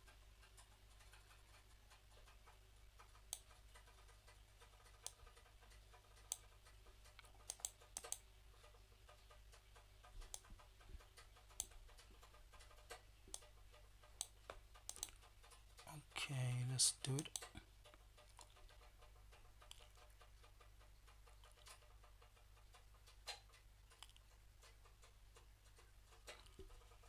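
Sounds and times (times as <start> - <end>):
mouse and keyboard clicks: 7.1 - 8.3, 9.2 - 15.6
low steady hum: 15.8 - 17.8.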